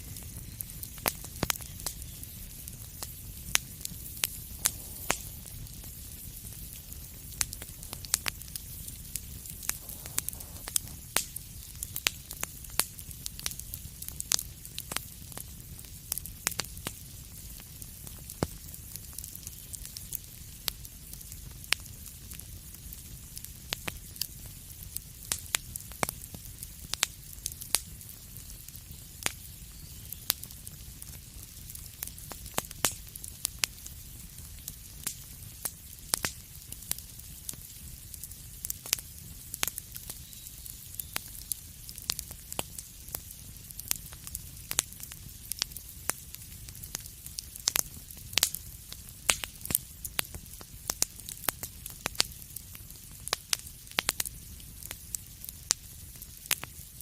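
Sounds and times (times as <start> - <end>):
soft hiss: 0.0 - 11.9
fireplace fire crackling: 0.0 - 57.0.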